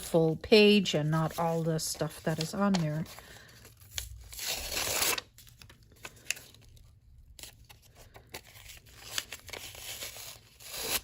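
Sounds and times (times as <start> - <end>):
paper crackling: 0.0 - 11.0
paper tearing: 4.0 - 5.4, 8.7 - 11.0.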